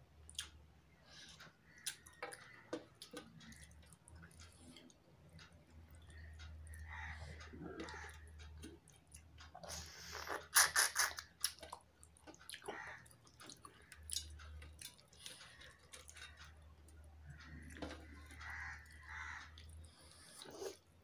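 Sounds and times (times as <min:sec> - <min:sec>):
close-up chewing: 0:00.3 - 0:21.0
lip smacks: 0:09.6 - 0:11.8.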